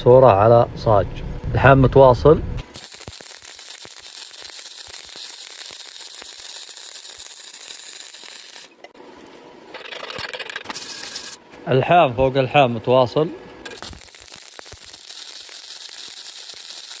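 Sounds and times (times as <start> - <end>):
arc welding crackling sizzle: 2.6 - 11.5, 12.1 - 17.0.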